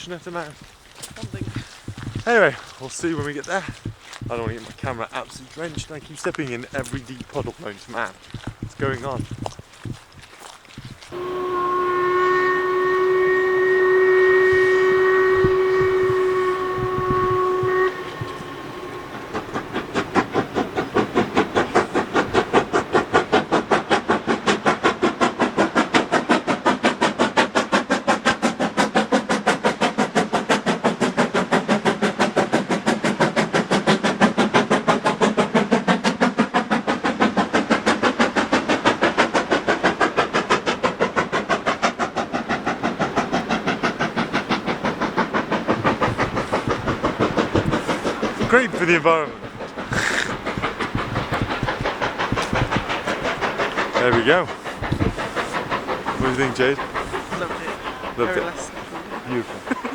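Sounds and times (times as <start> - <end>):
locomotive chuffing: 0.0 - 59.9
steam locomotive whistle: 11.1 - 24.6, 43.8 - 59.9.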